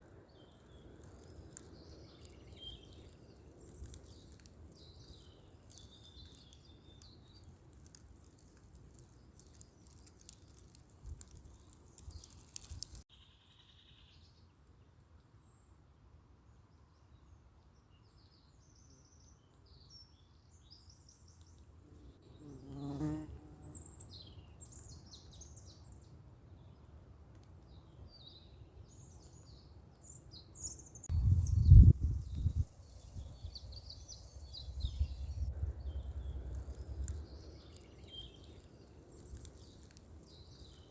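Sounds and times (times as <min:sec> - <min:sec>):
flying insect buzzing: 0:21.9 - 0:23.9
low wind rumble: 0:31.1 - 0:38.6.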